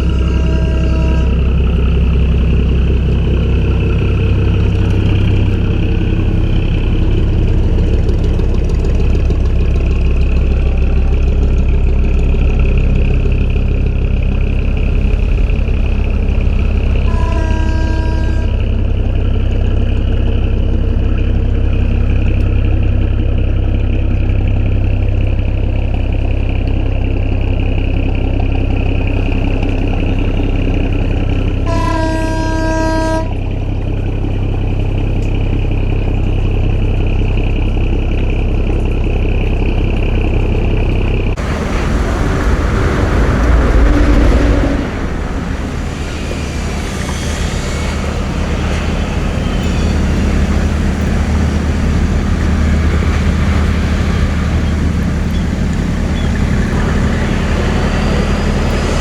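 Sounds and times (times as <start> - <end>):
boat horn: 0.0 - 2.0, 16.7 - 18.8, 31.6 - 33.5, 41.4 - 59.0
boat engine running: 0.0 - 59.0
rough engine rumble: 0.0 - 59.0.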